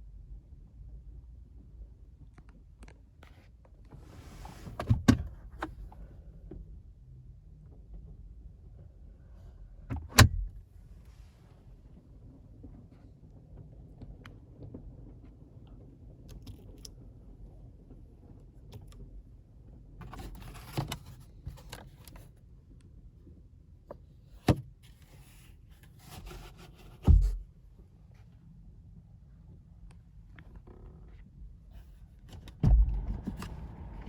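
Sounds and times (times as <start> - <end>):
heavy thump: 27.0 - 27.4, 32.6 - 34.0.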